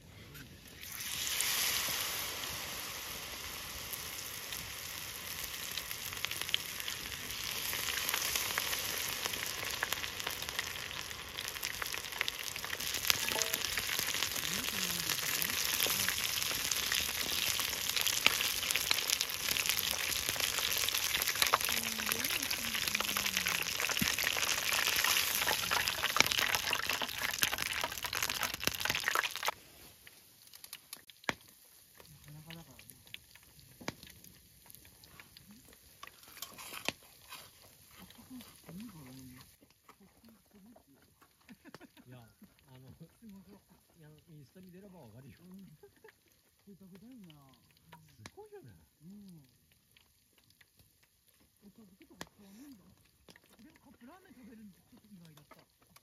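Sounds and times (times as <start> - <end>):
food sizzling in a hot pan: 0.6 - 39.6.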